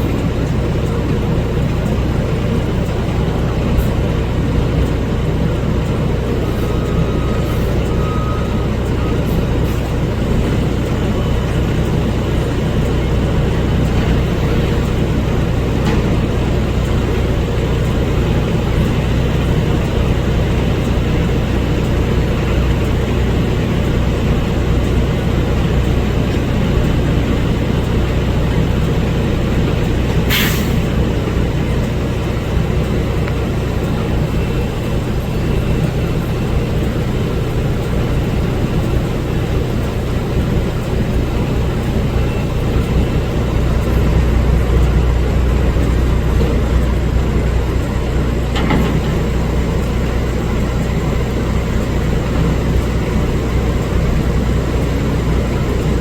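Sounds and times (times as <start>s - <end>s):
garbage truck engine running: 0.0s - 56.0s
short sharp hiss: 30.3s - 30.8s.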